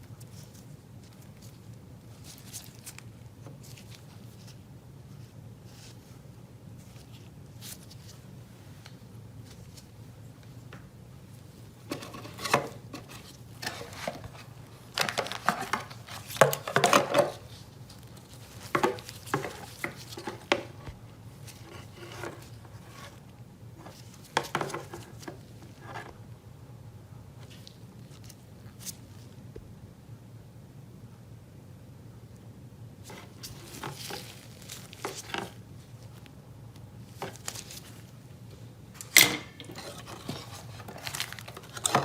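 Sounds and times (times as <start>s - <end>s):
mobile phone being handled: 11.8s - 23.2s, 23.8s - 26.2s, 39.0s - 42.0s.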